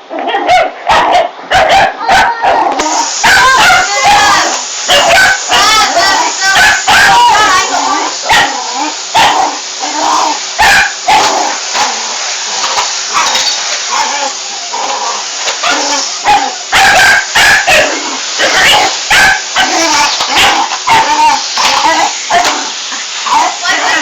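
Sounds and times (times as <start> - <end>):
dog barking: 0.3 - 7.7, 8.3 - 8.6, 9.2 - 9.6, 10.6 - 11.4, 15.6 - 22.6
vacuum cleaner running: 2.7 - 24.0.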